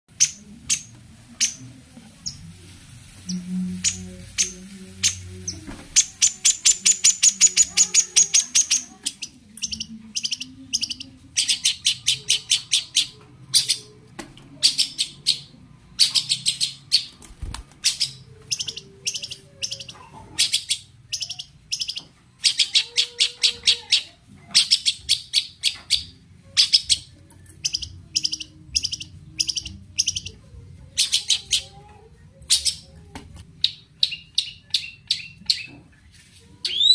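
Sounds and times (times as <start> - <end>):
bird singing harsh repeated notes: 3.3 - 13.8.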